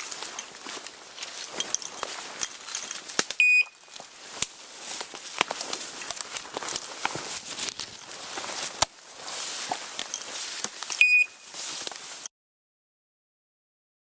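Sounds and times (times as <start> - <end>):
footsteps crunching through leaves: 0.0 - 12.3
twigs snapping: 0.0 - 12.3
short high electronic beep: 3.4 - 3.8, 11.0 - 11.5.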